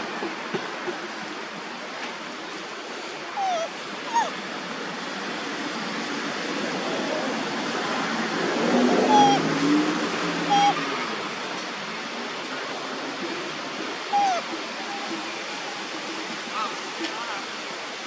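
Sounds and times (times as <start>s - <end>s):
steady rushing background noise: 0.0s - 18.0s
squeaky monkey calls: 3.4s - 4.4s, 9.1s - 9.5s, 10.5s - 10.8s, 14.1s - 14.4s.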